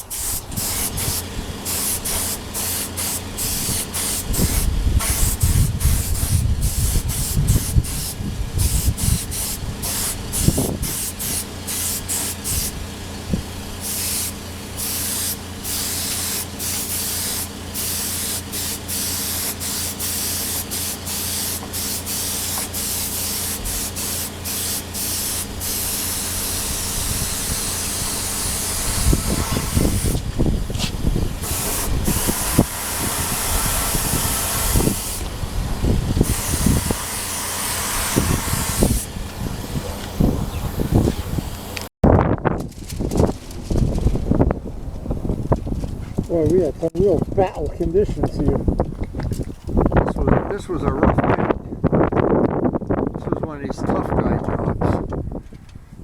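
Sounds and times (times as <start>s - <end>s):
spray gun hissing: 0.0s - 13.0s, 13.6s - 41.9s
steady low hum: 0.0s - 41.9s.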